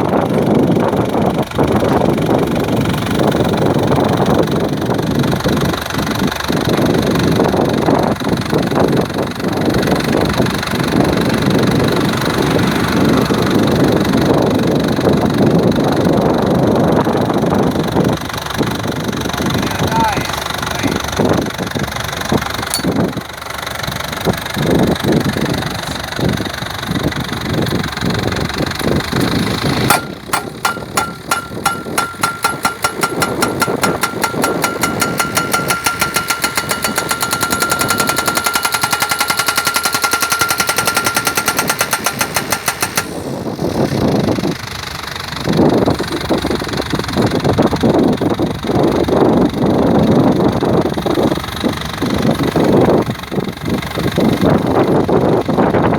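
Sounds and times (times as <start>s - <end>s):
pile driver hammering post: 22.7s - 23.0s, 29.2s - 43.4s
machine engine running: 23.6s - 45.3s.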